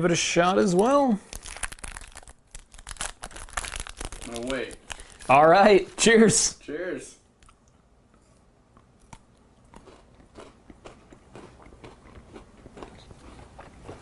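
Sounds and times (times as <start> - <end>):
crunchy chewing: 7.4 - 14.0.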